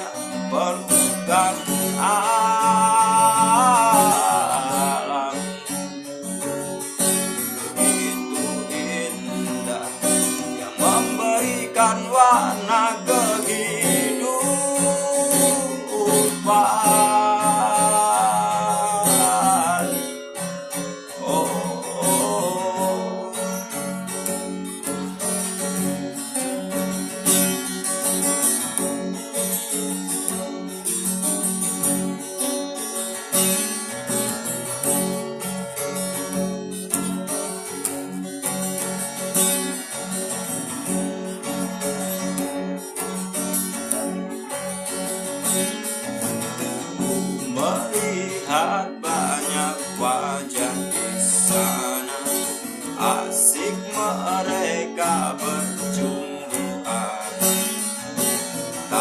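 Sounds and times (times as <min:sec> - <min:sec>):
man singing: 0:00.0 - 0:05.9, 0:07.4 - 0:24.1, 0:46.9 - 0:59.0
acoustic guitar: 0:00.0 - 0:59.0.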